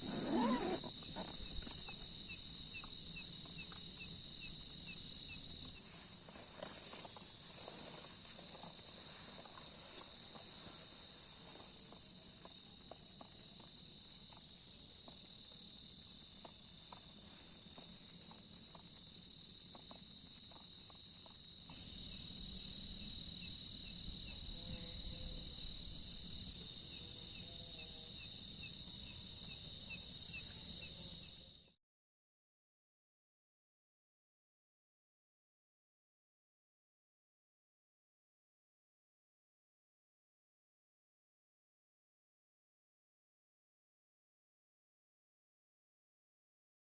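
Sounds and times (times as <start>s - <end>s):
crickets chirring chorus: 0.0s - 31.8s.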